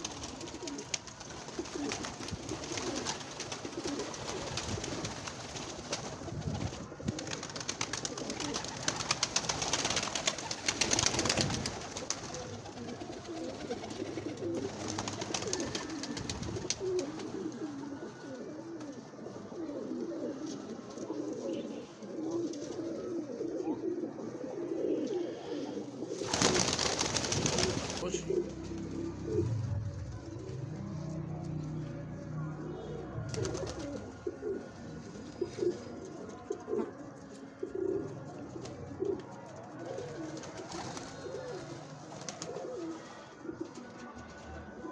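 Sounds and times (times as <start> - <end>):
rustling crackling noise: 0.0 - 23.6, 26.0 - 32.3
pigeons cooing: 0.0 - 44.9.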